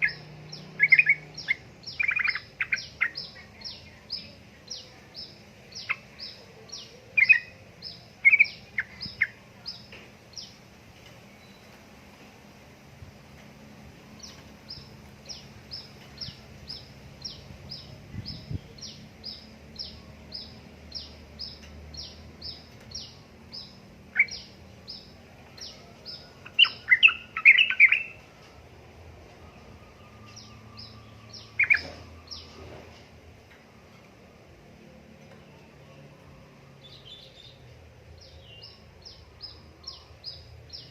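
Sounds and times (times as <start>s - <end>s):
bulbul warbling song: 14.2s - 28.2s, 30.0s - 32.6s.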